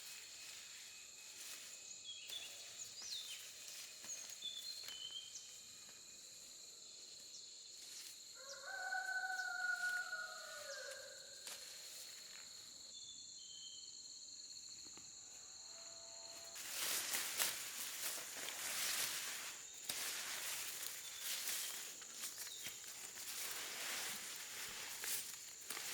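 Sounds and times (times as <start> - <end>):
insects buzzing: 0.0 - 25.9
rooster crowing: 8.3 - 11.4, 15.3 - 16.8
rustling noise: 16.5 - 25.9.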